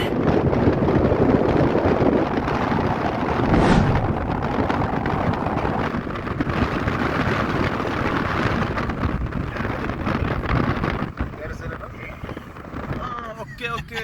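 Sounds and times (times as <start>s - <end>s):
vehicle road and engine noise: 0.0s - 13.9s
wind buffeting microphone: 0.0s - 14.0s
brief whoosh: 3.3s - 5.9s.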